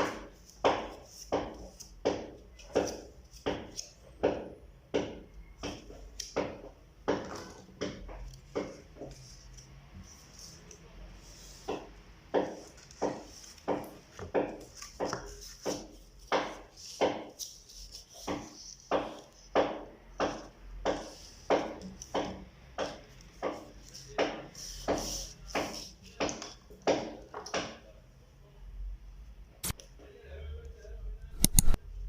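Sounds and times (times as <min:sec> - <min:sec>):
wood worked by hand: 0:10.6 - 0:27.8.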